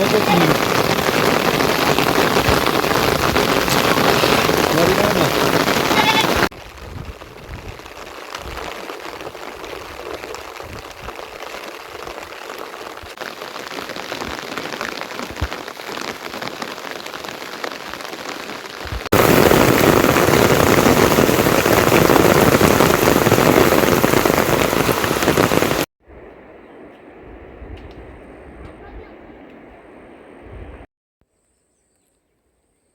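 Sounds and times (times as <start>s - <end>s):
rain falling: 0.0s - 25.9s.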